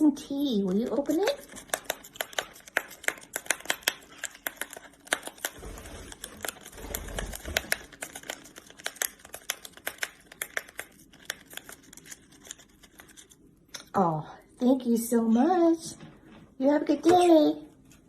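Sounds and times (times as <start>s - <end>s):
parrot beak tearing packet: 0.9s - 13.5s.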